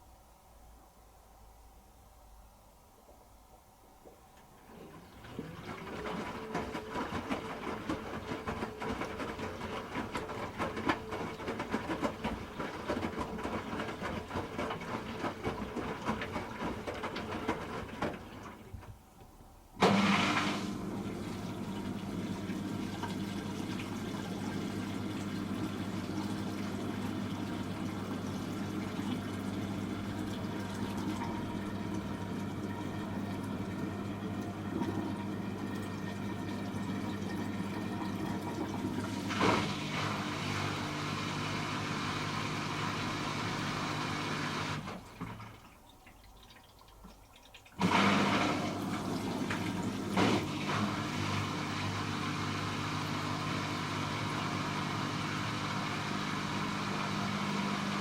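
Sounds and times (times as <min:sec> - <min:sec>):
water rushing into drum: 0:04.6 - 0:19.0, 0:19.8 - 0:58.0
wet load tumbling with clicks: 0:44.9 - 0:47.8.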